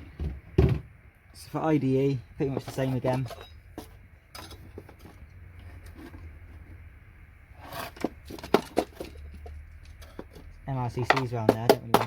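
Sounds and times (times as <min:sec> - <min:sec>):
metal scraper scrapes and clicks: 0:07.6 - 0:09.2
sharp metal knocks: 0:11.0 - 0:12.0.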